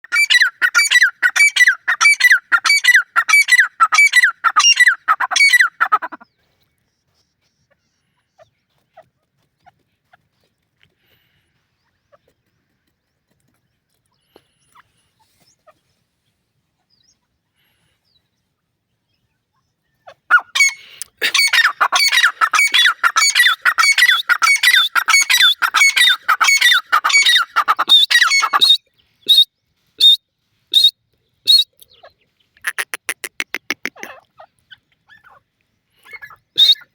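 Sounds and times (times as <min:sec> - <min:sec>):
francolin calling: 0:00.0 - 0:06.2, 0:20.3 - 0:30.2.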